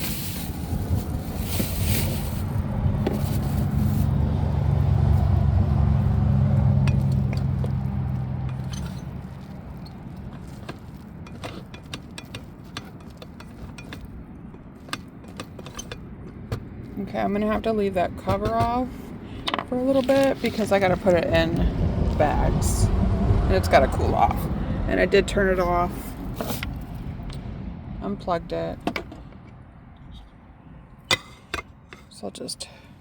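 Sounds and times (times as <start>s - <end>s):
passing vehicle engine hum: 0.0s - 11.3s, 16.0s - 30.8s
light clinks and scrapes: 6.8s - 16.4s, 19.4s - 21.2s, 26.0s - 27.4s.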